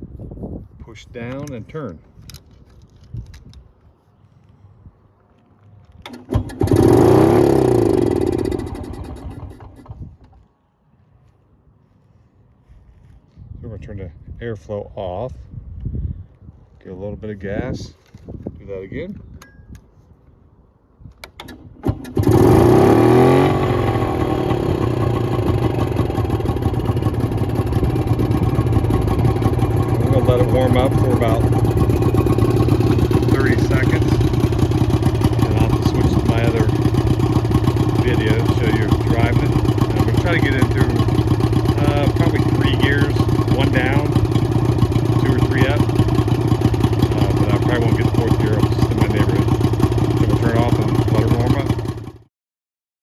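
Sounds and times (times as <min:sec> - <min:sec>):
motorcycle engine starting and stalling: 0:05.8 - 0:10.4, 0:21.1 - 0:52.3.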